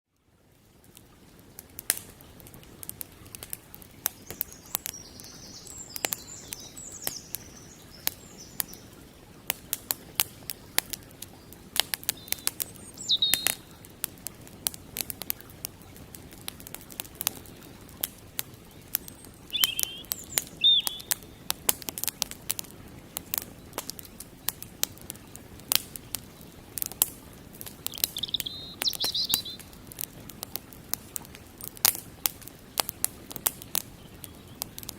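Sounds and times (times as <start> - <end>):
campfire crackling and popping: 0.2 - 34.9
birds chirping: 4.1 - 14.0, 18.5 - 21.7, 27.6 - 29.9.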